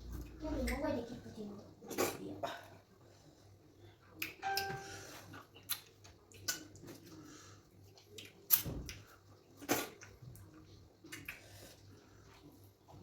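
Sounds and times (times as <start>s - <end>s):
wet eating smacks and clicks: 4.2s - 4.4s, 5.3s - 11.8s.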